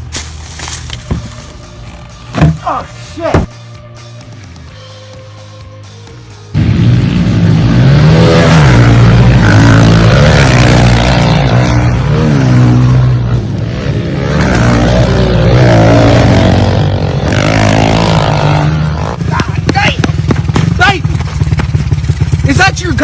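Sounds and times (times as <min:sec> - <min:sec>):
dirt bike engine revving: 0:06.5 - 0:23.0.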